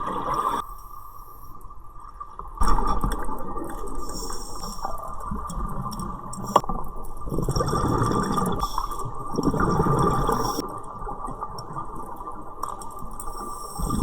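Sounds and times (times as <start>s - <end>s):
underwater bubbles gurgling: 0.0s - 14.0s.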